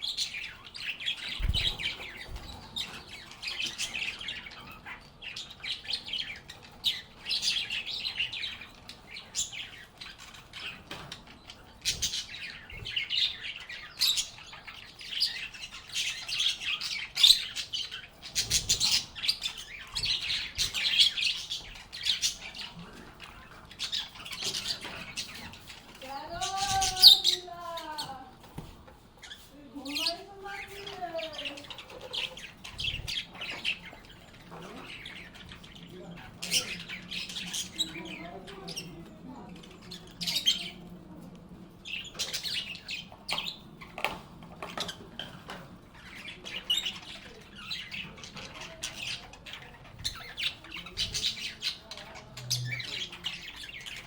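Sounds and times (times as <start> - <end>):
birds chirping and squeaking: 0.0 - 54.0.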